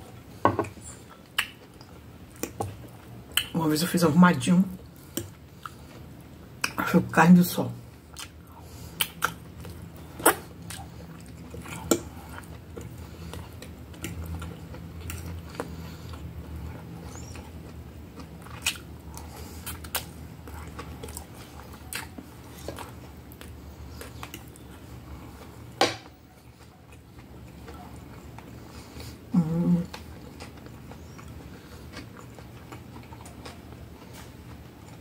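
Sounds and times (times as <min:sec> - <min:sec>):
person chewing spaghetti: 0:00.0 - 0:03.5, 0:04.8 - 0:06.8, 0:07.8 - 0:35.0
steady low hum: 0:00.0 - 0:35.0.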